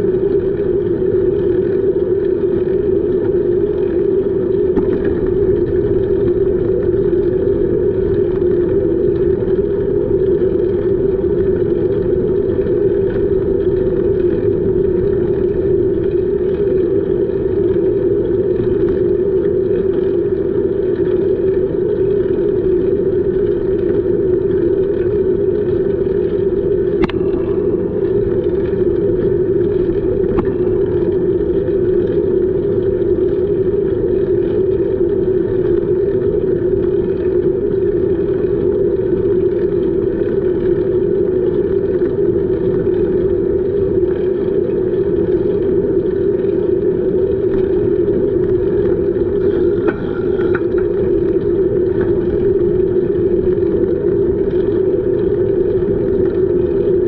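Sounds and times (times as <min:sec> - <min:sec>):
constant hum: 0:00.0 - 0:57.0
bicycle riding noise: 0:38.6 - 0:55.2.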